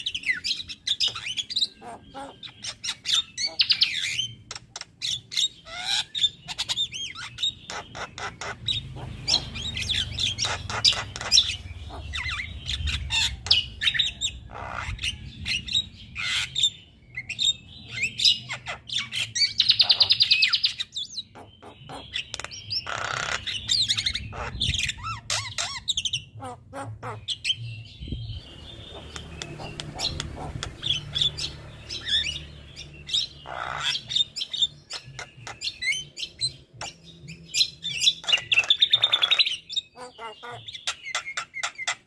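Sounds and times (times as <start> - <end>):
bird singing harsh squawks: 0.0 - 42.0
buzzy bird trills: 28.2 - 42.0.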